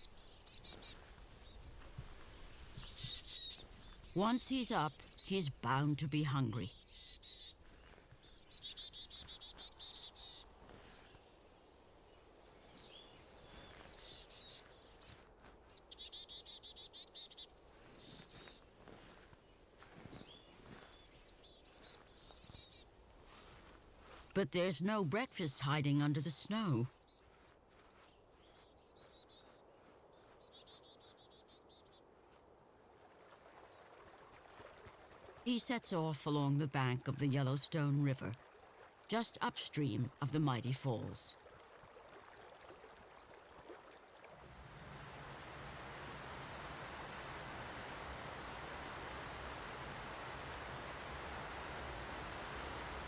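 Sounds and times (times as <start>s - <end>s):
soft steady hiss: 0.0s - 6.7s, 43.6s - 53.0s
songbird trill: 0.0s - 19.6s.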